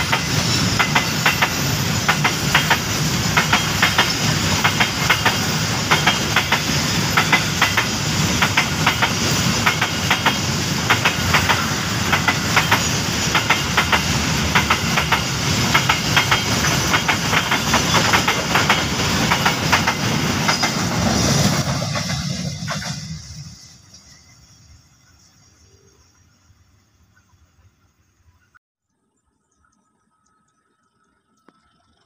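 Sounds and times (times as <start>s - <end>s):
wheels clicking over rail joints: 0.0s - 24.2s
freight train rumbling past: 0.0s - 27.2s.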